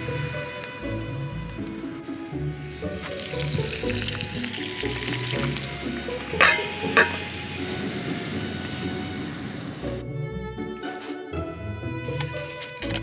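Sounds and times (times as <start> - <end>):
background music: 0.0 - 13.0
food sizzling in a pan: 2.9 - 9.9.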